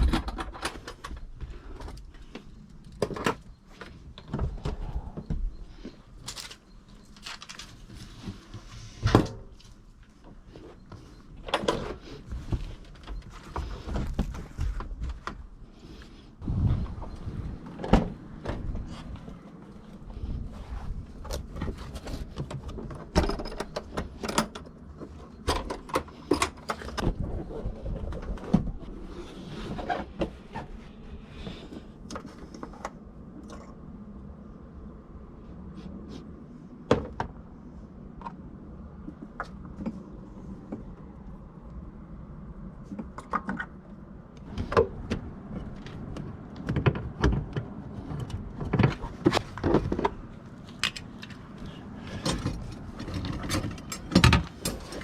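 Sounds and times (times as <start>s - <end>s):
tools clanking and knocking: 44.5s - 55.0s.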